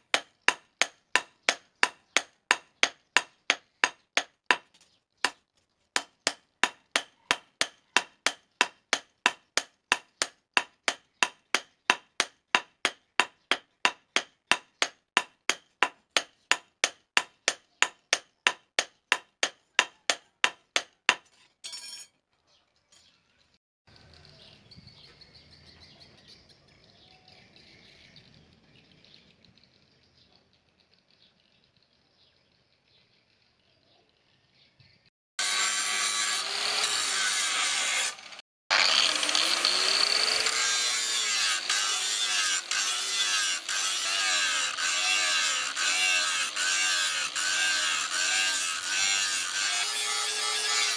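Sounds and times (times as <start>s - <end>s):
hammer striking steel on anvil: 0.1s - 4.6s, 6.0s - 22.1s.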